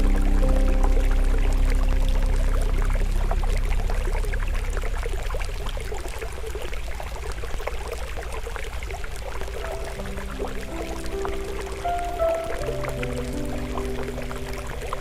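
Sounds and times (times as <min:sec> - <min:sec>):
soft held music tones: 0:00.0 - 0:08.1, 0:08.9 - 0:15.0
stream flowing: 0:00.0 - 0:15.0.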